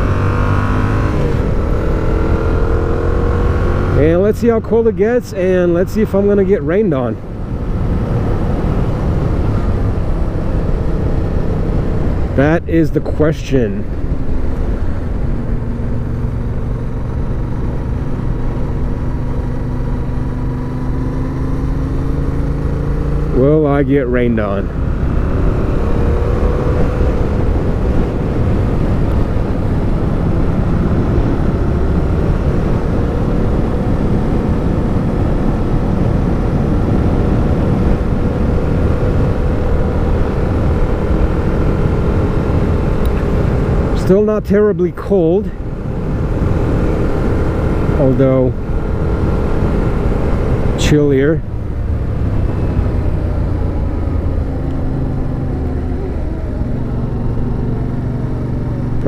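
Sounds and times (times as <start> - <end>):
motorcycle engine cruising: 0.0 - 59.0
wind rushing over microphone: 24.6 - 44.4.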